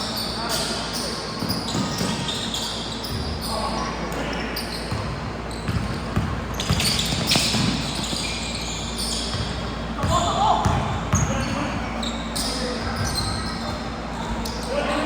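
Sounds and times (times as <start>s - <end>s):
basketballs bouncing on gym floor: 1.4s - 2.5s, 4.8s - 14.8s.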